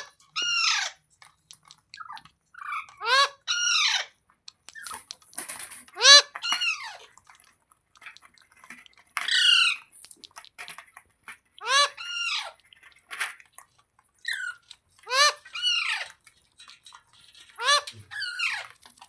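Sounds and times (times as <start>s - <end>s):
parrot squawking: 0.0s - 1.0s, 2.0s - 4.1s, 6.0s - 7.1s, 9.2s - 9.9s, 11.6s - 12.6s, 14.3s - 16.2s, 17.5s - 18.7s.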